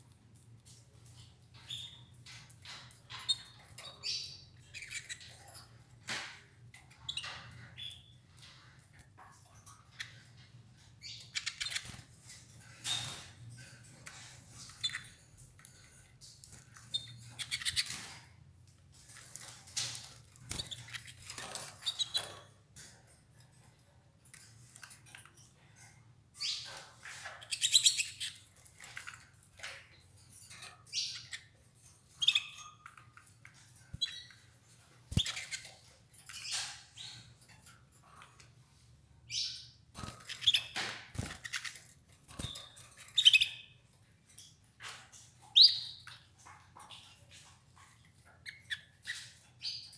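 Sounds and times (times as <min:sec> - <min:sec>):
canaries chirping: 0:00.0 - 0:49.9.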